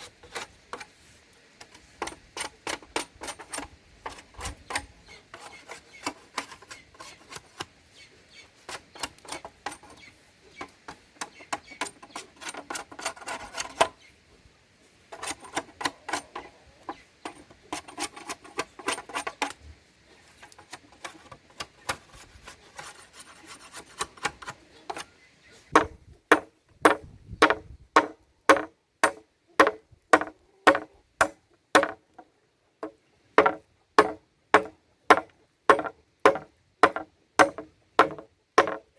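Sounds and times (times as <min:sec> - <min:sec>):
hand tool scraping: 0:00.0 - 0:07.7, 0:12.1 - 0:13.9, 0:17.3 - 0:19.6, 0:20.4 - 0:25.1, 0:25.8 - 0:32.2, 0:32.8 - 0:38.9
chopping strikes with ringing knock: 0:25.8 - 0:32.0, 0:33.4 - 0:38.8.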